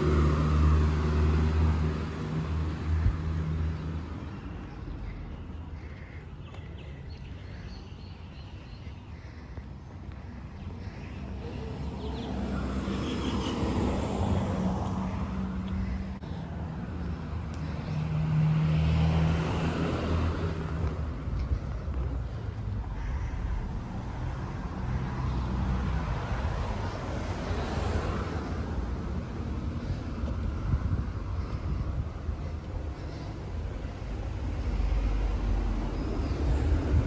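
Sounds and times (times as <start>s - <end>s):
vehicles passing: 0.0s - 37.0s.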